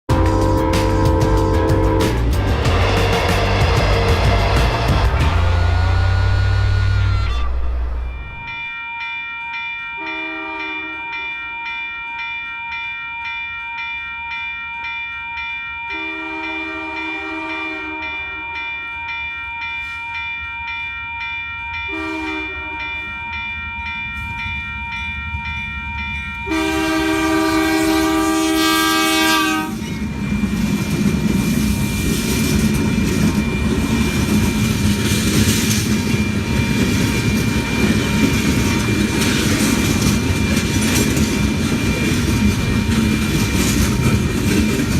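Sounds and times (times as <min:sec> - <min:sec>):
locomotive engine rumble: 0:00.1 - 0:08.4
locomotive air horn blasts: 0:00.1 - 0:08.5, 0:10.0 - 0:11.0, 0:15.9 - 0:18.2, 0:21.9 - 0:22.9, 0:26.5 - 0:29.8
train wheels on rails: 0:00.1 - 0:08.7, 0:22.9 - 0:44.9.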